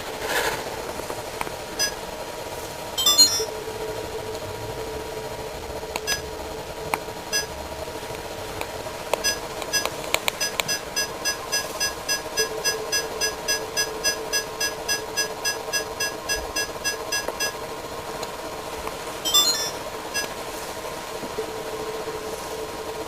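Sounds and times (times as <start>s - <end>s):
robot vacuum rapid beeping: 1.8s - 2.0s, 3.0s - 3.5s, 6.0s - 6.3s, 9.2s - 17.6s, 19.3s - 20.4s
short electronic chirp: 3.0s - 3.5s, 19.3s - 20.3s.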